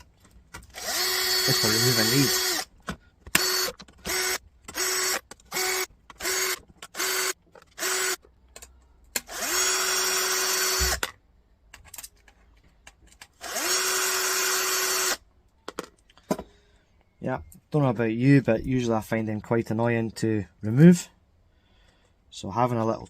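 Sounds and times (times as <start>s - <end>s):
electric drill spinning: 0.7s - 2.7s, 3.3s - 8.2s, 9.2s - 11.1s, 13.4s - 15.2s.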